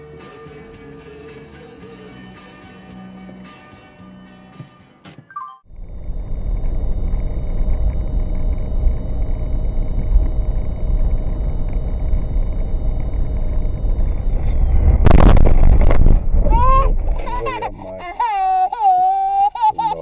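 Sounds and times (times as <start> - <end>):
engine and road rumble: 5.7 - 18.0.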